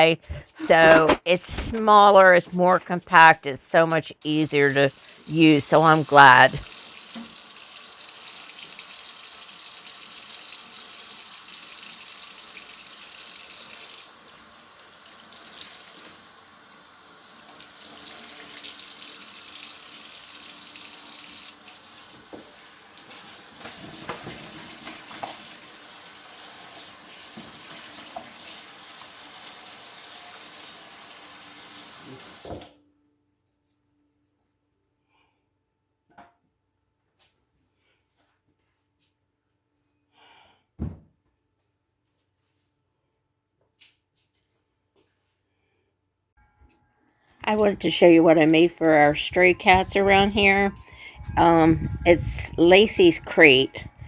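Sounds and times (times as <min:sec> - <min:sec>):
water running from tap: 0:04.2 - 0:32.7, 0:47.5 - 0:53.9.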